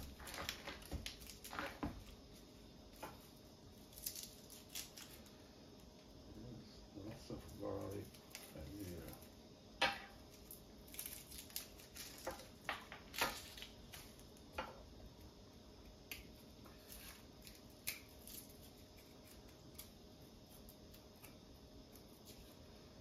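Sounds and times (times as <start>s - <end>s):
light clicks and snaps of garlic: 16.0s - 16.3s, 17.4s - 18.5s.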